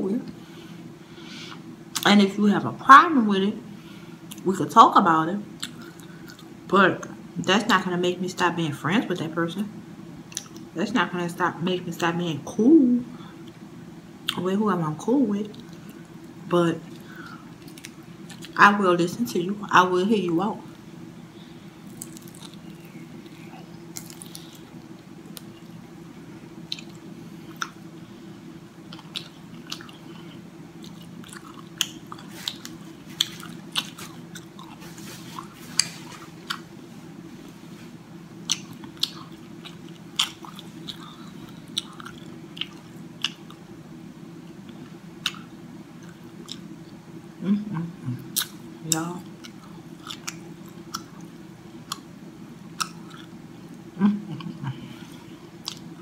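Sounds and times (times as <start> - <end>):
steady low hum: 0.0 - 56.0
wet chewing mouth clicks: 38.5 - 43.6, 52.8 - 53.3.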